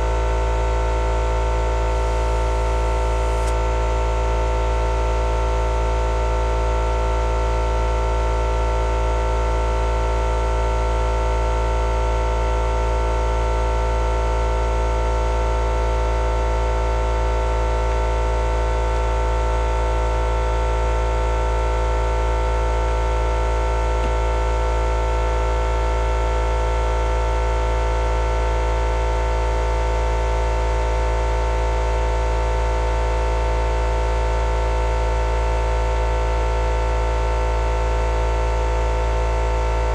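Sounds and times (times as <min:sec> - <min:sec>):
machine hum: 0:00.0 - 0:04.4.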